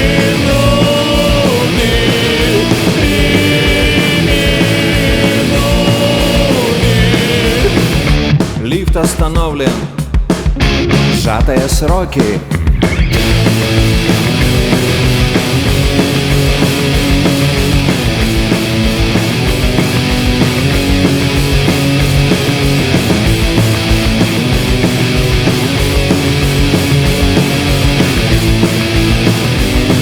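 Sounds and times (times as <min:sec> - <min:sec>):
instrumental rock music: 0:00.0 - 0:30.0.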